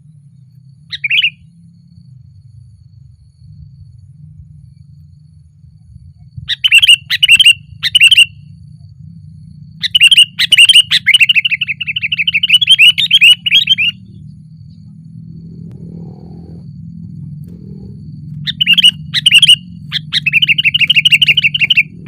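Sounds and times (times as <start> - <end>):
bird calling: 0.9 - 1.5, 6.5 - 8.4, 9.8 - 15.0, 17.5 - 22.0
bird chattering notes: 9.8 - 14.0, 18.4 - 22.0.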